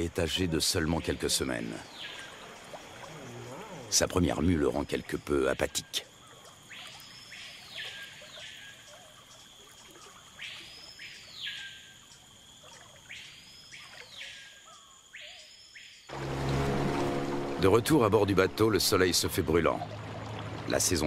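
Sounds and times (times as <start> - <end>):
bird calling with sweeping notes: 6.2 - 12.0.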